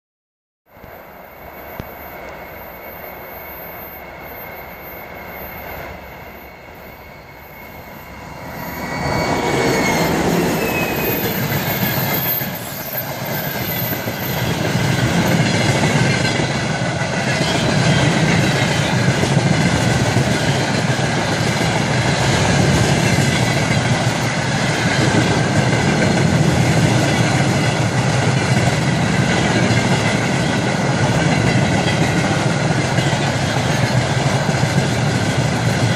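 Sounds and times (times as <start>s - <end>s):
diesel locomotive passing: 0.7s - 35.9s
locomotive high whistle: 1.3s - 14.6s
train wheel clatter: 8.8s - 35.9s.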